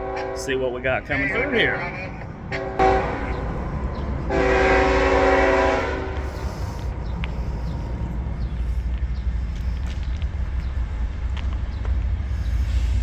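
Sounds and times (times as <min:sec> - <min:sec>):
train air horn blast: 0:00.0 - 0:07.0
low train rumble: 0:00.0 - 0:13.0.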